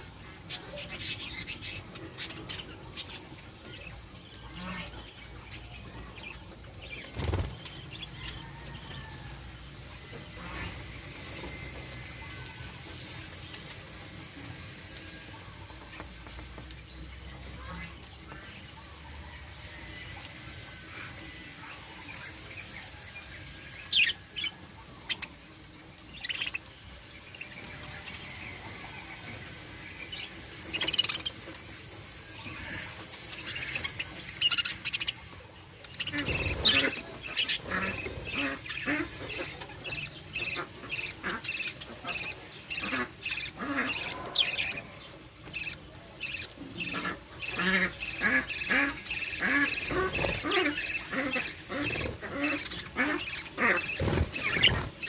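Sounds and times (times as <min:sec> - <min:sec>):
budgerigars chirping: 0:45.6 - 0:54.9.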